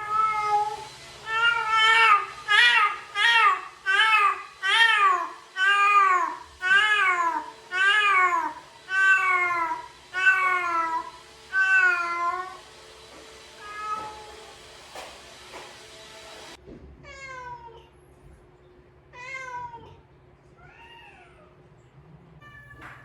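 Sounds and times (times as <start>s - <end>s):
cat meowing loudly: 0.0s - 12.6s, 13.6s - 14.4s, 22.4s - 23.0s.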